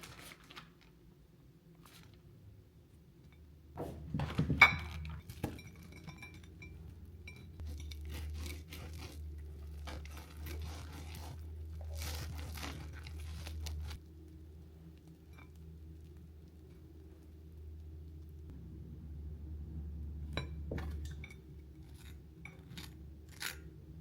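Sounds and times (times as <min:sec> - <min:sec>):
steady low hum: 0:02.5 - 0:24.0
dishes and glassware clinking: 0:03.8 - 0:07.9.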